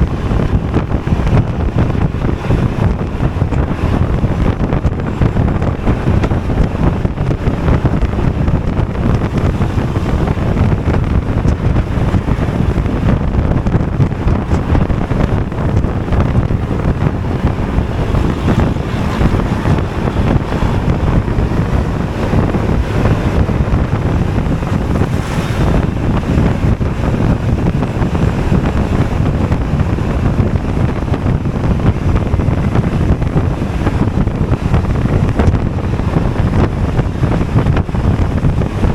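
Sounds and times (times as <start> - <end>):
scooter engine and road noise: 0.0 - 38.9
wind noise on microphone: 0.0 - 38.9.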